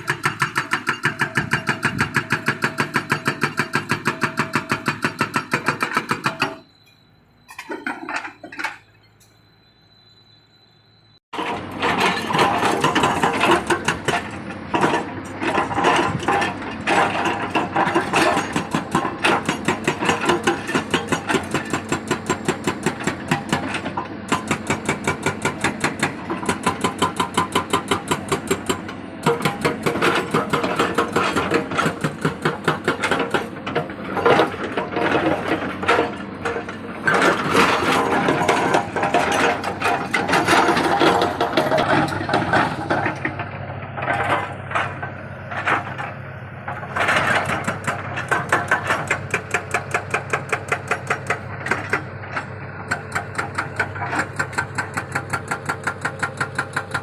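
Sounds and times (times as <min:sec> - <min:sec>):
hydraulic breaker hammering: 0:00.0 - 0:06.7, 0:11.4 - 0:46.1, 0:46.7 - 0:57.0.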